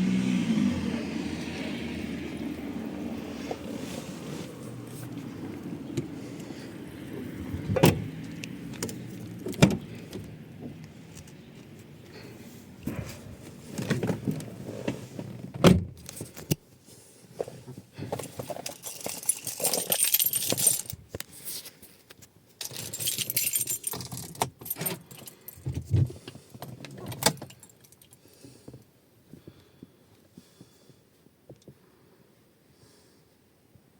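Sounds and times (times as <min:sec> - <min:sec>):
diesel car engine running: 0:00.0 - 0:14.7
keys jangling: 0:18.4 - 0:21.0, 0:22.6 - 0:25.7, 0:27.0 - 0:28.2.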